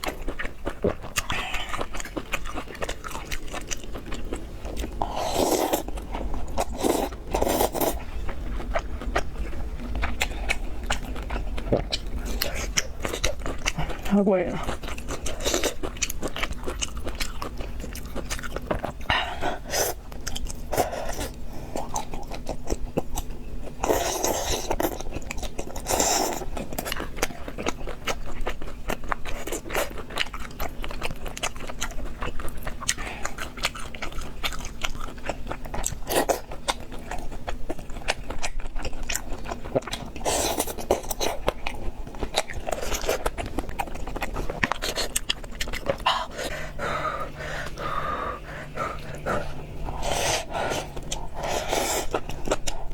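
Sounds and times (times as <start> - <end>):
chewing and crunching: 0.0 - 52.9.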